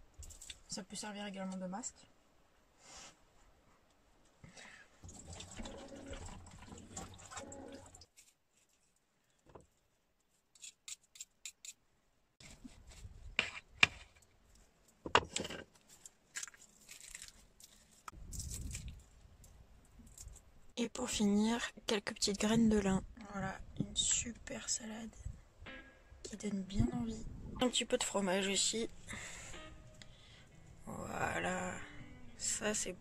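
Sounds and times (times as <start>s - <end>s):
rustling handling: 8.1s - 10.5s, 15.7s - 19.2s.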